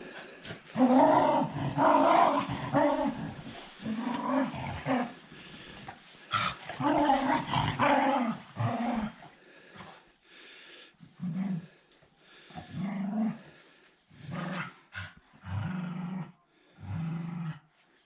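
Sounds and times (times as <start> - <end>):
dog growling and grumbling: 0.1 - 9.4, 12.6 - 13.6, 14.2 - 17.7.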